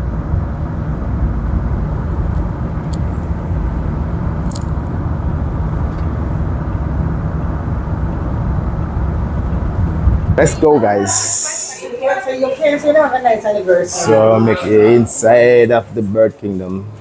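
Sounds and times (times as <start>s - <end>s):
car interior rumble: 0.0s - 11.6s.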